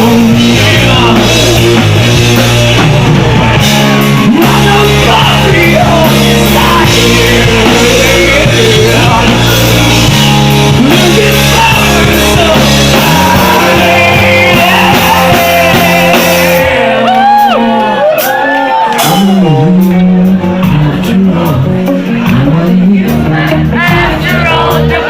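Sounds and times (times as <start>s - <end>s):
bass: 0.0s - 25.0s
drums: 0.0s - 25.0s
guitar: 0.0s - 25.0s
person singing: 0.0s - 25.0s.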